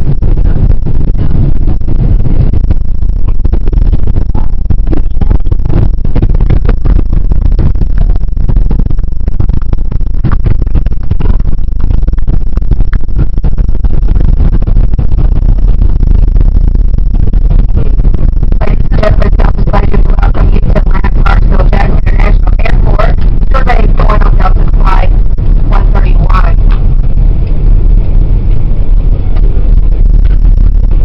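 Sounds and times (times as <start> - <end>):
airliner cabin low rumble: 0.0 - 31.0.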